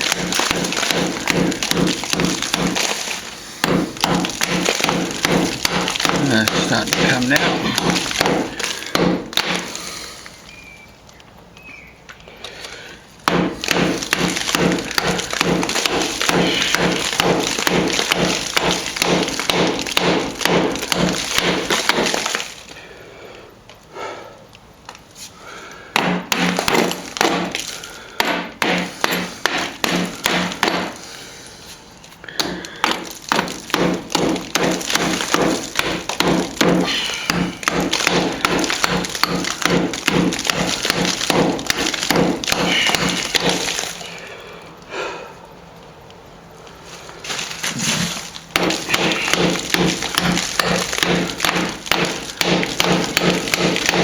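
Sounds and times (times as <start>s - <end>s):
hammer striking chisel on plaster: 0.0s - 2.9s, 3.6s - 9.7s, 13.2s - 22.3s, 26.0s - 31.0s, 32.4s - 43.7s, 47.9s - 54.0s.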